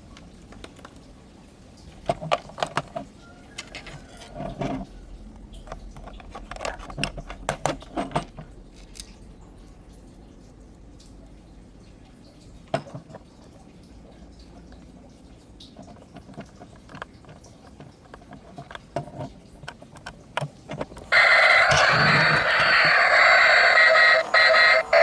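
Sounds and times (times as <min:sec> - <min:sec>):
plastic toy clicks and knocks: 0:02.0 - 0:04.8, 0:05.7 - 0:09.1
toy playing electronic tune: 0:21.1 - 0:25.0.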